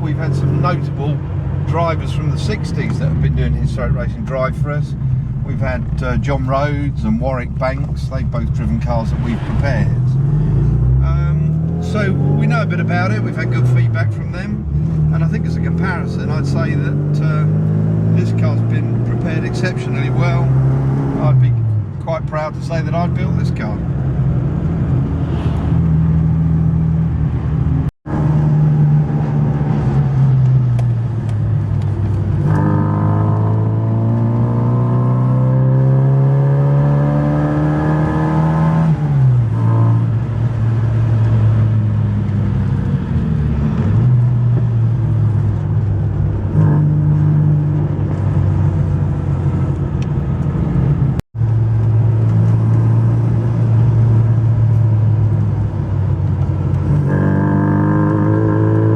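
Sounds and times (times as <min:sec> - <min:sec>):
car engine revving: 0:00.0 - 0:58.9.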